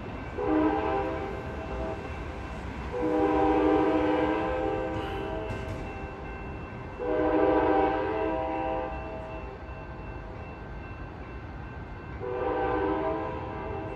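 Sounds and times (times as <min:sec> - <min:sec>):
low train rumble: 0:00.0 - 0:13.9
train horn blasts: 0:00.4 - 0:02.2, 0:02.9 - 0:05.9, 0:07.0 - 0:09.4, 0:12.2 - 0:13.9.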